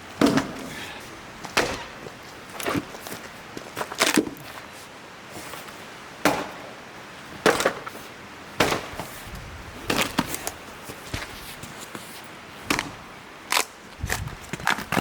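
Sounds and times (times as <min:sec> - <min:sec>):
axe chopping log: 0:00.2 - 0:00.8, 0:01.4 - 0:02.9, 0:06.2 - 0:06.8, 0:07.4 - 0:07.9, 0:08.6 - 0:09.1, 0:09.9 - 0:10.5.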